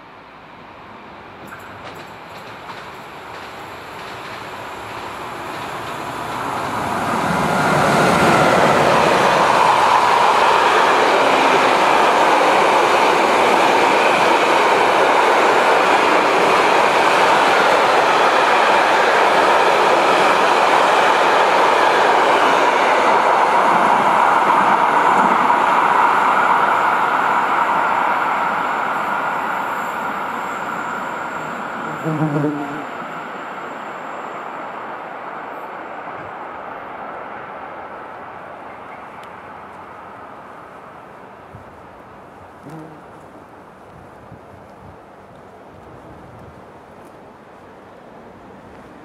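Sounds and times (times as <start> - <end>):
freight train passing: 0.0 - 49.0
wheels rolling on rails: 1.5 - 13.8.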